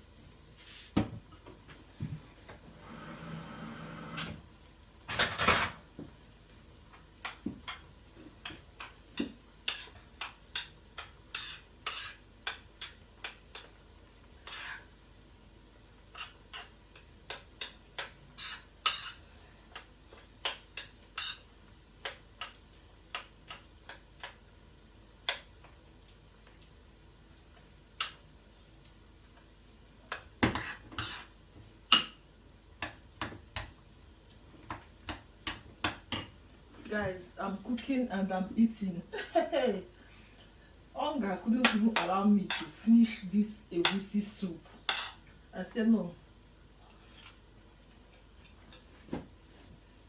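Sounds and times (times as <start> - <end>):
utensils and pots clinking: 5.1 - 5.8.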